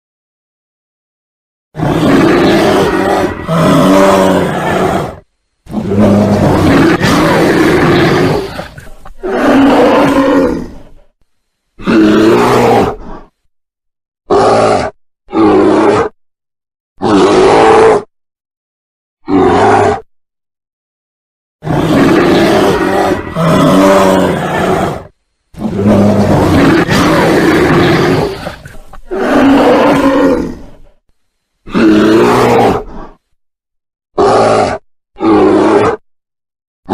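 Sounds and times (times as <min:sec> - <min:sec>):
bear roaring: 0:01.8 - 0:11.1, 0:11.8 - 0:13.4, 0:14.3 - 0:16.2, 0:17.0 - 0:18.1, 0:19.2 - 0:20.1, 0:21.6 - 0:31.0, 0:31.7 - 0:33.3, 0:34.2 - 0:36.0.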